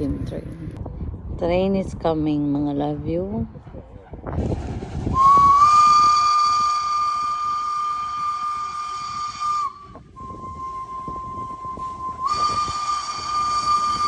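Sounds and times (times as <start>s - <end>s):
rumbling noise: 0.0s - 14.0s
steam locomotive whistle blast: 5.2s - 14.0s.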